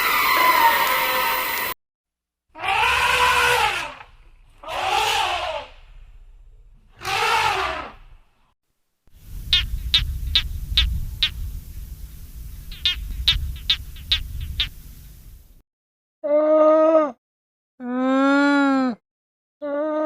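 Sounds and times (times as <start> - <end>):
drawn-out animal call: 4.6 - 5.7
low rumble: 9.2 - 15.6
short sharp chirps: 9.4 - 15.6.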